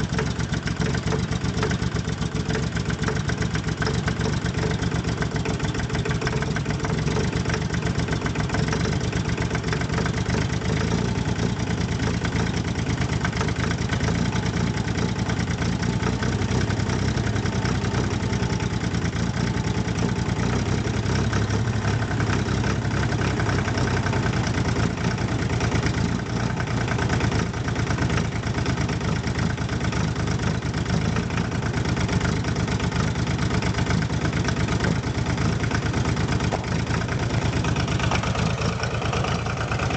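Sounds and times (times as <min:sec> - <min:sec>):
tractor diesel engine idling: 0:00.0 - 0:39.9.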